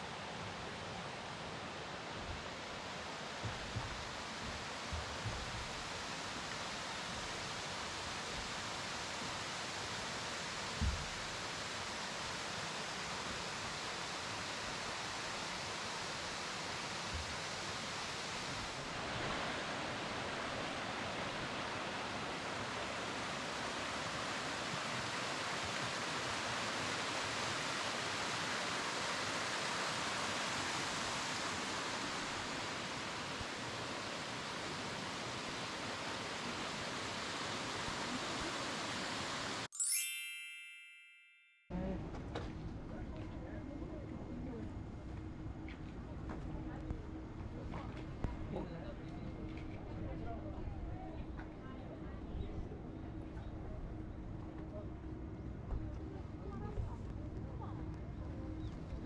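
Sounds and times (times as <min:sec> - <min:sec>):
mountain stream rushing: 0:00.0 - 0:39.7.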